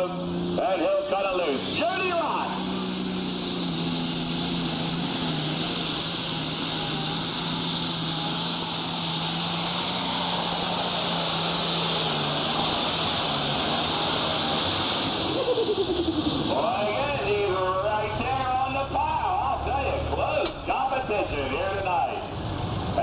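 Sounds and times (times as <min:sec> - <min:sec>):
diesel tractor engine at full throttle: 0:00.0 - 0:23.0
loud hiss: 0:02.0 - 0:17.0.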